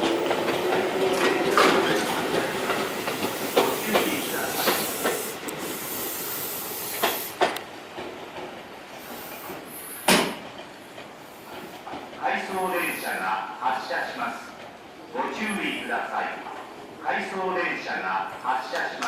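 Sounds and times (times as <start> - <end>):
train hiss: 0.0 - 7.8, 8.7 - 14.4
train wheels clacking over rail joints: 0.0 - 12.4.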